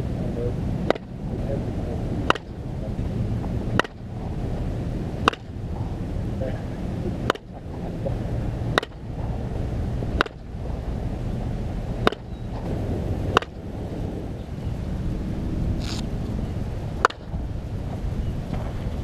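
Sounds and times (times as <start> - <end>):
wind on microphone: 0.0 - 19.0
bat striking softballs: 0.8 - 1.1, 2.2 - 2.6, 3.4 - 4.1, 5.2 - 6.0, 7.2 - 7.9, 8.7 - 9.3, 10.0 - 10.6, 12.0 - 12.7, 13.3 - 13.6, 17.0 - 17.4.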